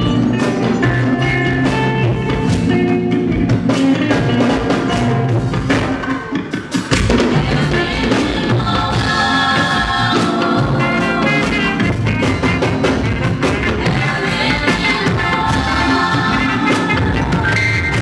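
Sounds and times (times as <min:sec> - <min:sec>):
drum kit beat: 0:00.0 - 0:18.0
person singing: 0:13.6 - 0:18.0.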